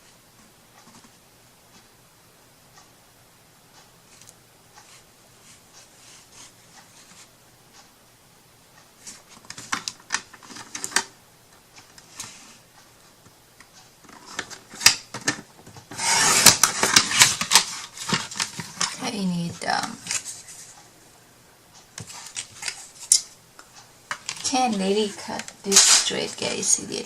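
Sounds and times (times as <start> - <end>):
rasping paper cut: 15.9 - 17.9
paper crackling: 16.0 - 19.0.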